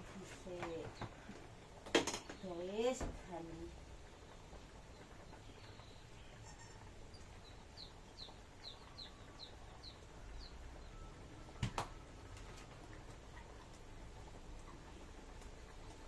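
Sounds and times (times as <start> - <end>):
bird chirping: 4.8 - 12.0.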